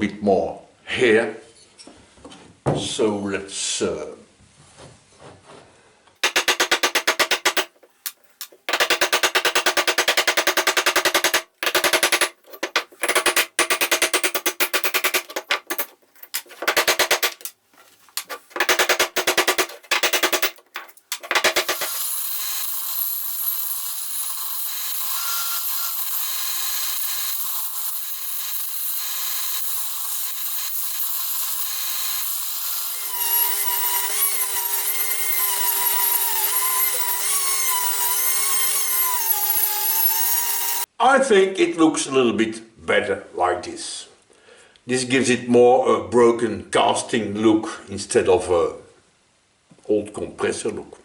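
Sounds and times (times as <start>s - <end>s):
power tool grinding: 6.2s - 17.5s, 18.2s - 40.9s
rapid hammering: 6.2s - 17.5s, 18.2s - 22.1s
whining tool pitch: 31.5s - 40.9s.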